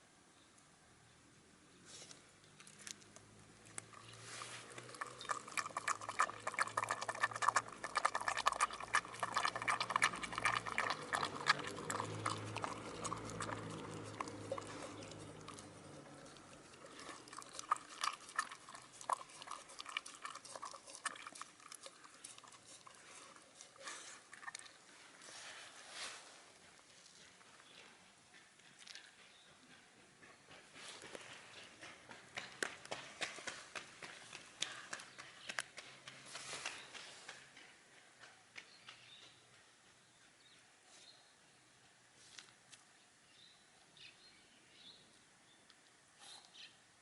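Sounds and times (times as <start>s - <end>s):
dog chewing bones: 3.8s - 24.8s.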